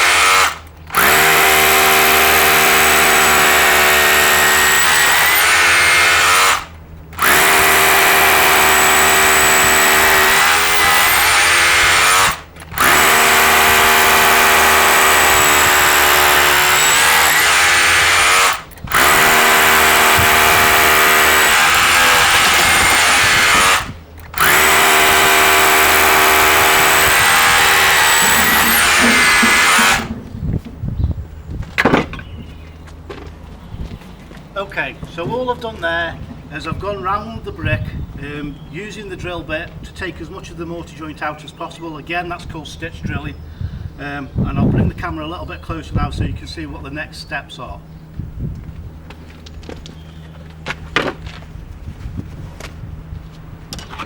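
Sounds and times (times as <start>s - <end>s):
power drill boring into mortar: 0.0s - 30.2s.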